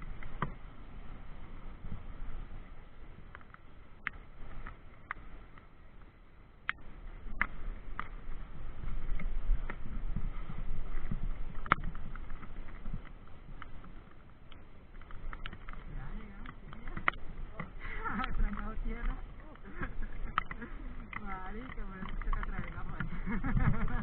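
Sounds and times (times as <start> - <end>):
bike riding rumble: 0.0 - 24.0
bike rattling clicks and knocks: 11.0 - 24.0.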